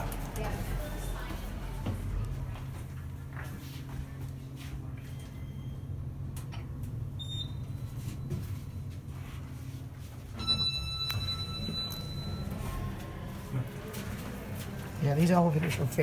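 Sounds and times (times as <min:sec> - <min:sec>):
constant low hum: 0:00.0 - 0:16.0
faint short beep: 0:10.4 - 0:12.6.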